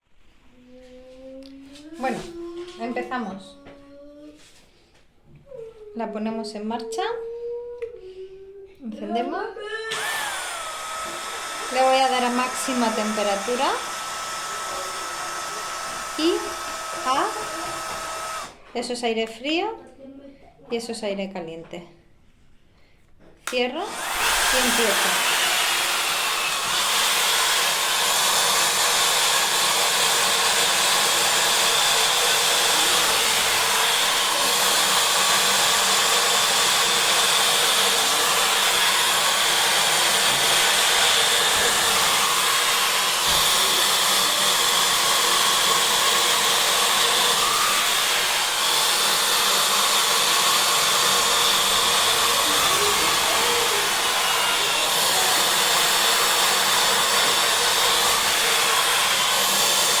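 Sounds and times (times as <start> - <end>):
hair dryer fan whir: 9.9 - 18.6, 23.5 - 60.0.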